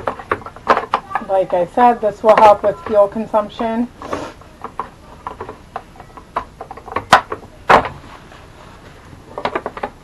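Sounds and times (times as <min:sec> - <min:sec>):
handling clicks and knocks: 0:00.0 - 0:03.8, 0:04.5 - 0:08.0, 0:09.3 - 0:10.0.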